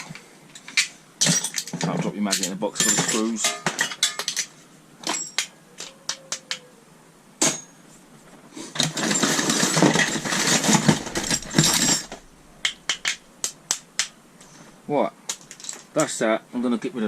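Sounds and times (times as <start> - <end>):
screws rattling in a box: 8.8 - 12.3.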